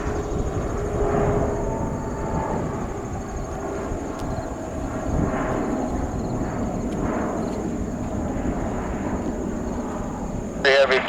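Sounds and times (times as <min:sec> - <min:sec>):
jet engines rumbling in distance: 0:00.0 - 0:11.0.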